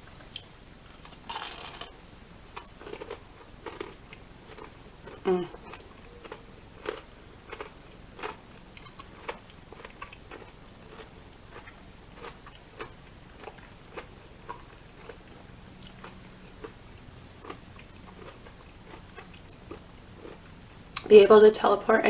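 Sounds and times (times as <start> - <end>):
faint steady hum: 0.0 - 22.0
chewing mouth clicks and smacks: 5.7 - 15.2.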